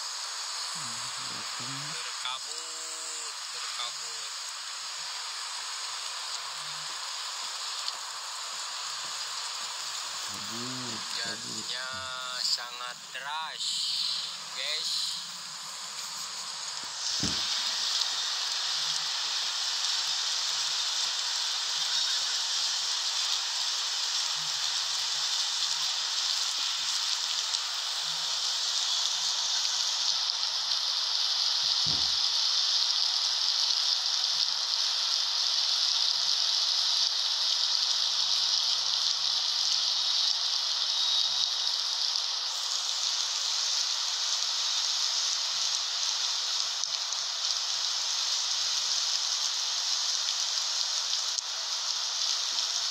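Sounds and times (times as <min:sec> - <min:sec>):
heavy rain pouring: 0:00.0 - 0:52.9.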